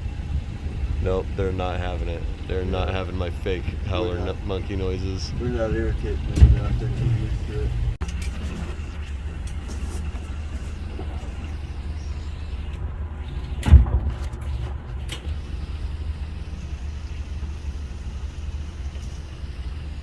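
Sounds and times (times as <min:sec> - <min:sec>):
boat motor humming: 0:00.0 - 0:20.0
loud thump: 0:06.2 - 0:07.9.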